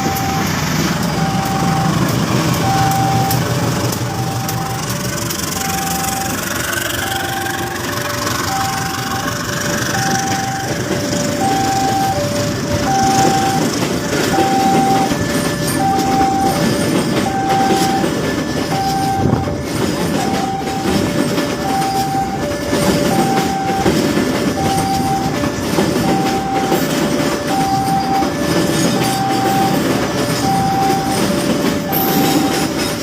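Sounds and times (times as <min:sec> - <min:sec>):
train rumble: 0:00.0 - 0:33.0
train wheels clattering: 0:00.0 - 0:33.0.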